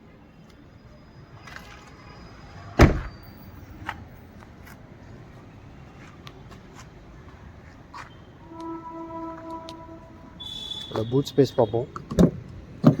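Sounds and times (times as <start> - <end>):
car door slamming: 2.8 - 3.2.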